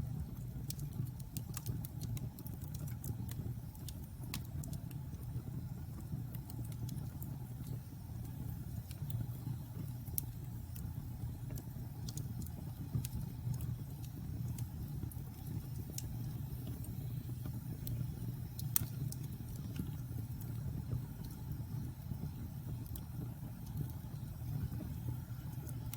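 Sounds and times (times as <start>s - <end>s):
fire flames rumbling: 0.0s - 25.9s
wood fire crackling and popping: 0.0s - 25.9s.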